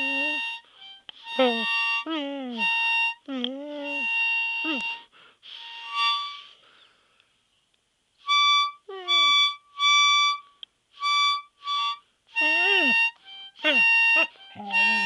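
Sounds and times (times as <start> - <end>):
harmonica: 0.0 - 7.1, 8.2 - 15.0
dog howling: 14.6 - 15.0.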